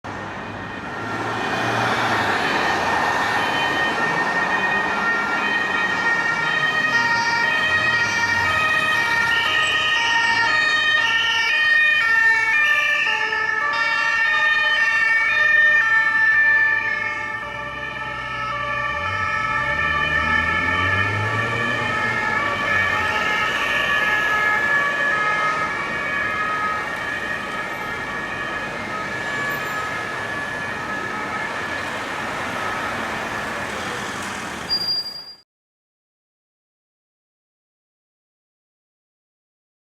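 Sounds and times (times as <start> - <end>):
police two-tone sirens: 0.1 - 34.8.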